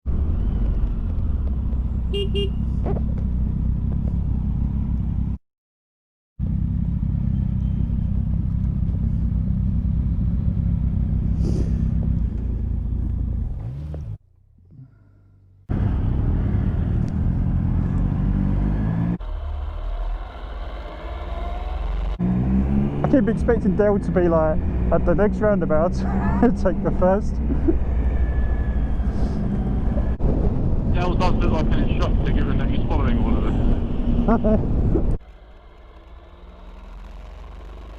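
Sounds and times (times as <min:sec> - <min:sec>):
motorcycle engine drone: 0:00.1 - 0:05.4, 0:06.4 - 0:37.9
horn toot: 0:02.1 - 0:02.8
wind rush: 0:29.0 - 0:35.2.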